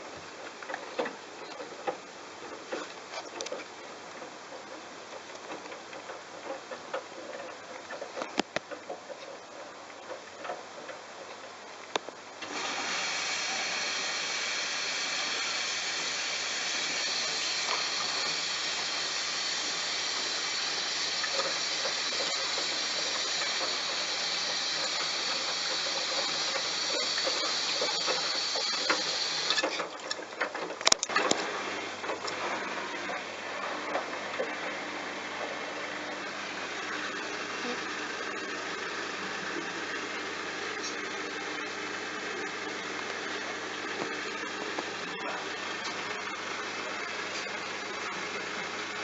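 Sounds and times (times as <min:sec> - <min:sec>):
washing machine water inlet hiss: 0:12.4 - 0:29.7
sharp clicks and knocks: 0:17.1 - 0:33.0.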